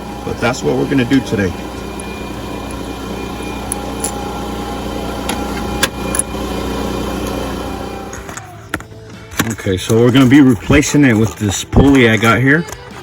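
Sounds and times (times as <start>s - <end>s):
mechanical motor hum: 0.0s - 8.6s.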